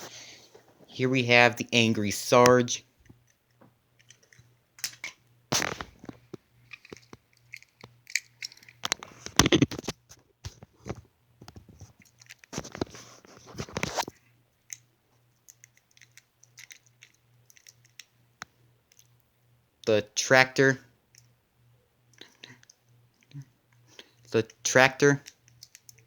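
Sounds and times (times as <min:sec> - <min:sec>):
toy cars clicking and scraping: 0:04.0 - 0:09.9, 0:11.7 - 0:13.0, 0:15.4 - 0:18.1, 0:24.4 - 0:26.0.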